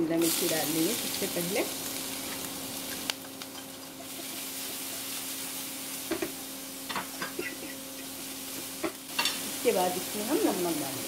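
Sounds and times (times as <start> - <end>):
pepper sizzling in hot oil: 0.0 - 11.0.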